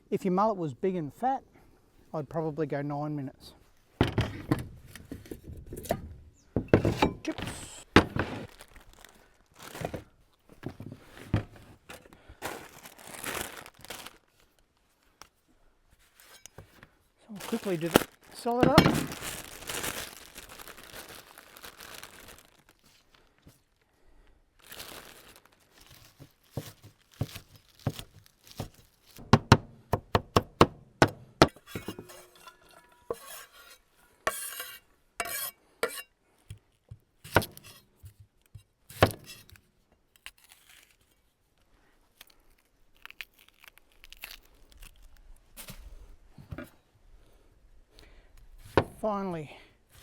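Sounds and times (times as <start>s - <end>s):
kitchen knocks and clinks: 6.6s - 7.3s, 31.4s - 33.3s.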